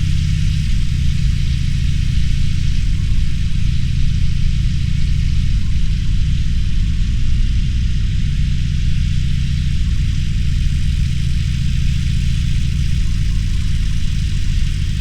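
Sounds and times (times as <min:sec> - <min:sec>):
motorcycle engine at low revs: 0:00.0 - 0:15.0
steady hiss: 0:00.0 - 0:15.0.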